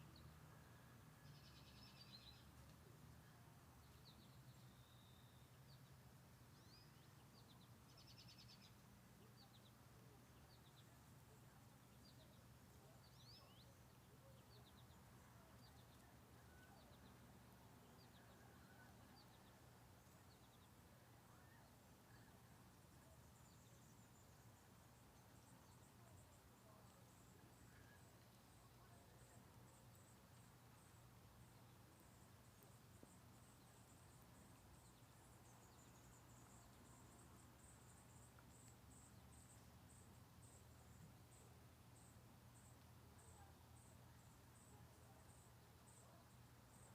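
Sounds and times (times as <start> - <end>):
insect chirping: 23.0 - 46.9.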